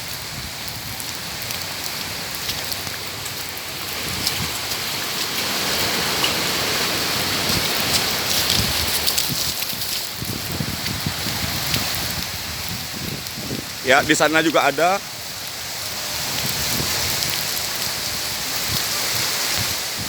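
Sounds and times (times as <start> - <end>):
rain falling: 0.0 - 20.0
raindrops pattering on surfaces: 0.0 - 20.0.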